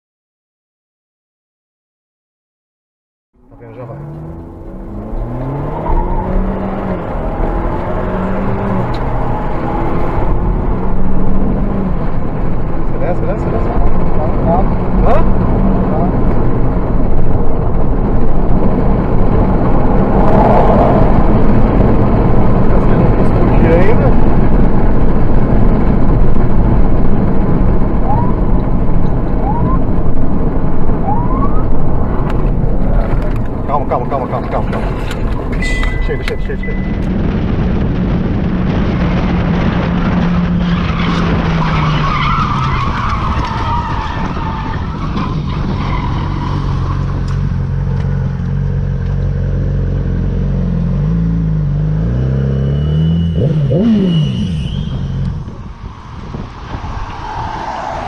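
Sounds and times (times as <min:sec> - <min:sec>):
car engine running: 0:03.4 - 0:58.0
heavy road rumble: 0:03.4 - 0:58.0
rising whistle-like tones: 0:28.0 - 0:28.6, 0:29.4 - 0:29.9, 0:52.6 - 0:58.0.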